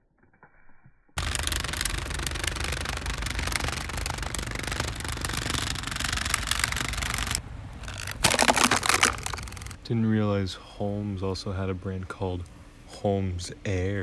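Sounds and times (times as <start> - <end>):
fan clattering plastic: 1.2 - 9.8.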